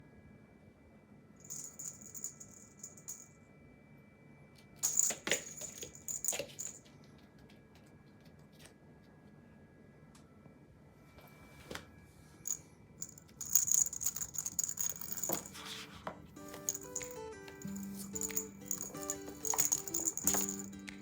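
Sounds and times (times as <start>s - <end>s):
small bell jingling: 1.4s - 3.3s, 4.8s - 6.9s, 12.5s - 15.6s, 16.4s - 20.8s.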